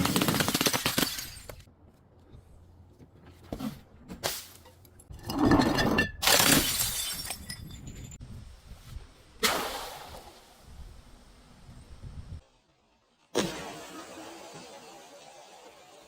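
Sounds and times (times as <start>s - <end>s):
glass bottle shattering: 5.2s - 8.2s
glass shards clinking: 5.2s - 8.2s.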